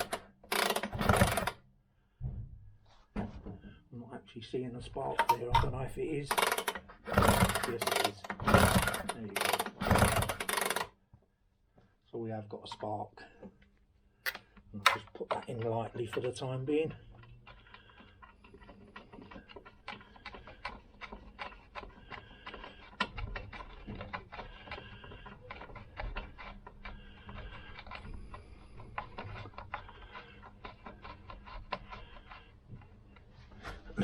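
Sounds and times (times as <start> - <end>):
metallic clicks of hand tools: 5.2 - 5.7, 6.3 - 10.9.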